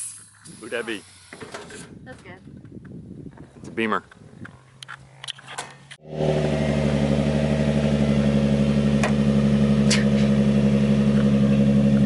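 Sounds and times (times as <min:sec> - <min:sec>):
car engine idling: 0:06.0 - 0:12.0.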